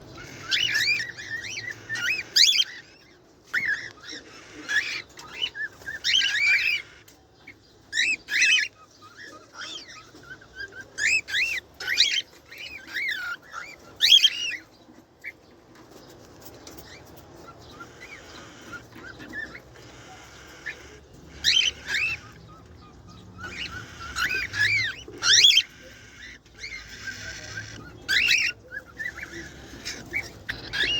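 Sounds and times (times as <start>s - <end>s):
birds chirping sharply: 0.0s - 30.9s.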